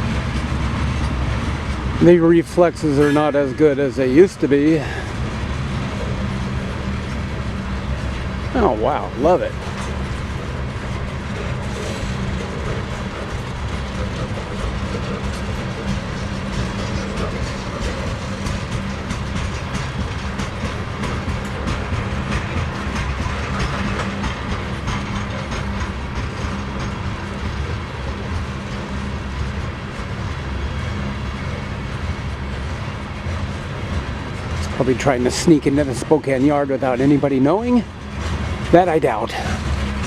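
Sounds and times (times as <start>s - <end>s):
train wheels rolling on rails: 0.0s - 40.0s
wheels clicking over track: 0.0s - 40.0s.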